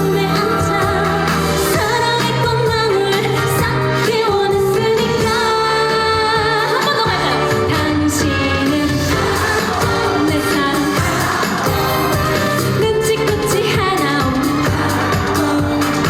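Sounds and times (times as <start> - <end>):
woman singing: 0.0 - 16.0.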